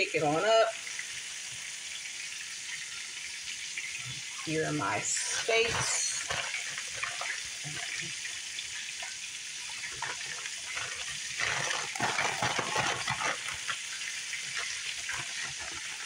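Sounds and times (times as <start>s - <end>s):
steak sizzling in hot oil: 0.0s - 16.0s
oil spitting and crackling: 3.8s - 16.0s.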